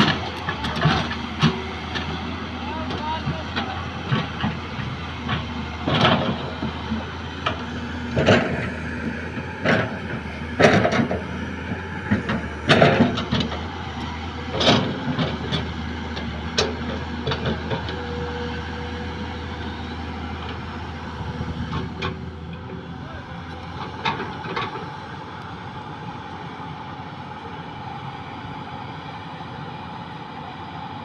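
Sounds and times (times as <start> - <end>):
diesel engine running: 0.0 - 31.0
loud metal clanks and knocks: 7.4 - 13.6, 14.4 - 18.0.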